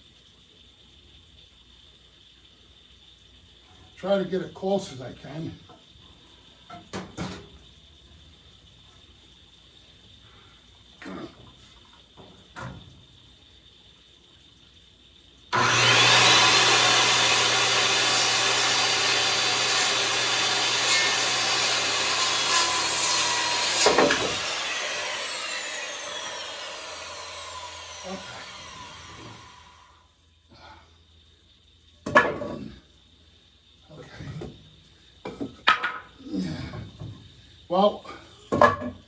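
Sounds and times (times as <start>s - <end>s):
power saw cutting wood: 15.5s - 30.0s
saw spinning down whine: 15.5s - 30.0s.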